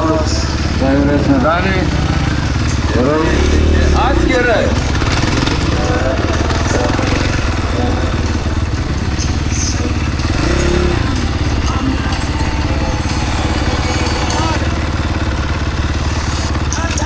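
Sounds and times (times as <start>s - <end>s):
motocross bike engine running: 0.0s - 17.0s.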